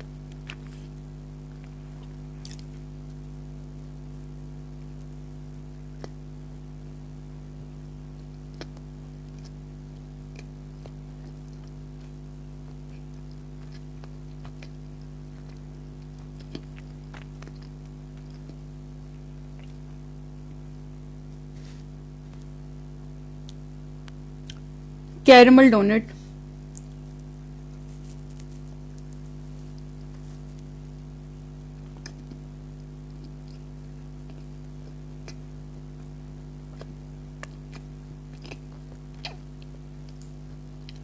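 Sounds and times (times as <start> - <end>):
person eating soft donut: 0.0 - 24.9, 26.3 - 41.0
steady electrical hum: 0.0 - 41.0
mouth clicks and smacks: 36.7 - 41.0.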